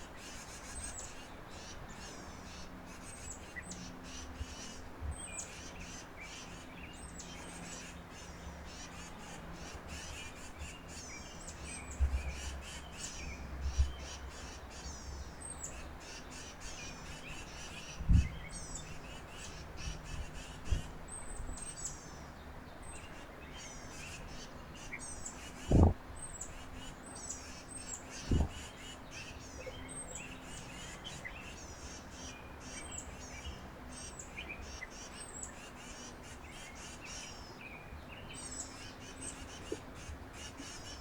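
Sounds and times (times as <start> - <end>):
birds chirping: 0.0 - 41.0
dull low thumps: 25.7 - 26.0, 28.3 - 28.6.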